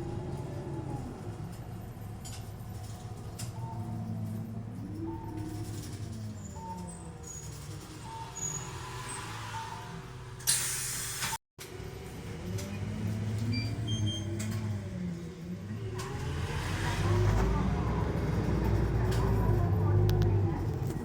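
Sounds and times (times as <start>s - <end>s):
bus engine accelerating: 0.0s - 21.0s
air brake hiss: 8.5s - 11.4s.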